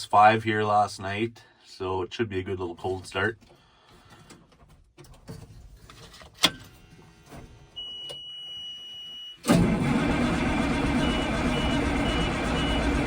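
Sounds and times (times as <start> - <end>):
diesel tractor engine starting: 9.4 - 13.0.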